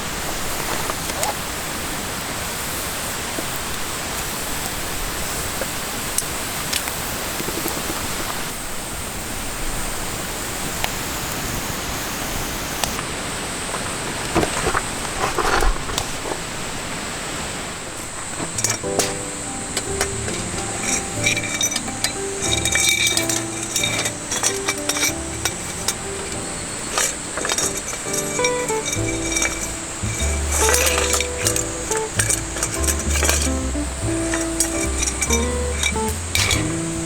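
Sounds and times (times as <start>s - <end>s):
oil popping and crackling: 18.0s - 37.0s
food deep-frying in hot oil: 18.4s - 37.0s.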